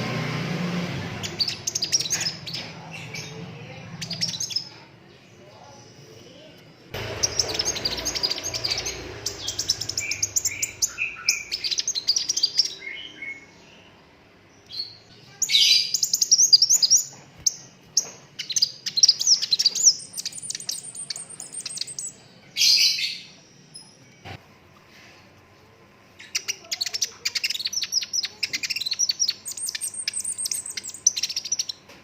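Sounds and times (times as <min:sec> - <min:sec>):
sunbird twittering trills: 0:01.2 - 0:04.7, 0:07.0 - 0:13.9, 0:26.2 - 0:31.8.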